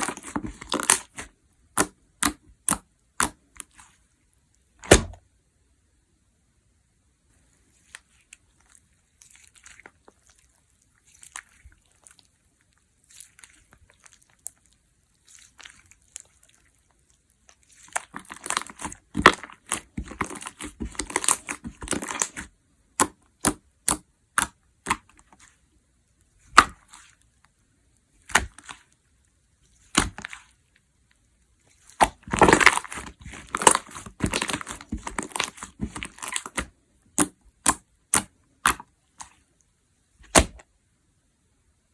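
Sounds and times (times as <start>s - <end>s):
slime squished and crackling: 0.0s - 4.0s, 7.8s - 27.5s, 28.1s - 30.8s, 31.6s - 39.5s, 40.2s - 40.6s
slime popping and clicking: 18.2s - 25.1s.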